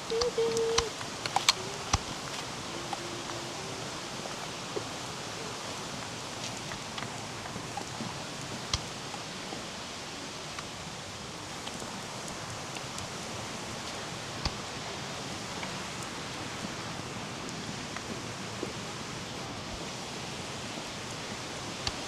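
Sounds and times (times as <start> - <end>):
sharp clicks: 0.0 - 3.7
water rushing: 0.0 - 22.0.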